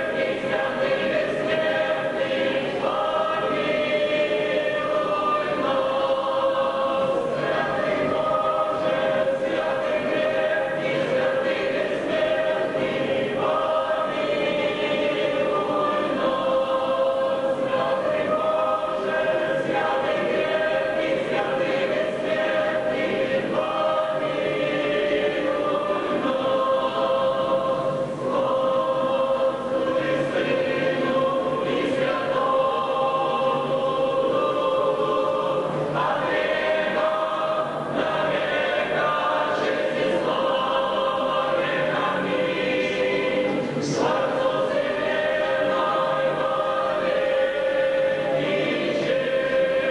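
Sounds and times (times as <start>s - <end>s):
choir singing a hymn: 0.0s - 49.9s.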